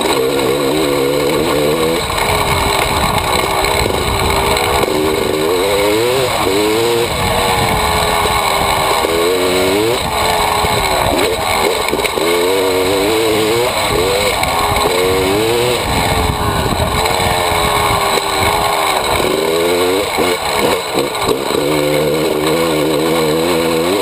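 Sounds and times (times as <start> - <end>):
two-stroke motorcycle engine: 0.0 - 24.0
wind rushing over microphone: 1.6 - 20.8.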